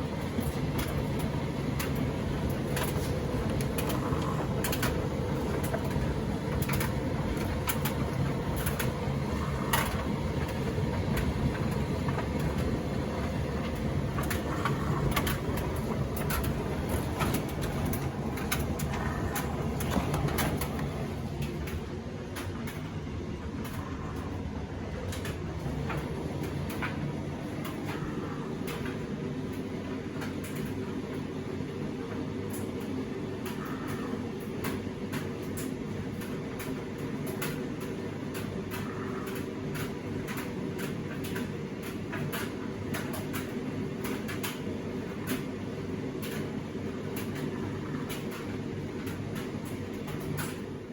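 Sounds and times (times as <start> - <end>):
tumble dryer motor hum: 0.0 - 50.9
load tumbling clicks and knocks: 0.3 - 23.8.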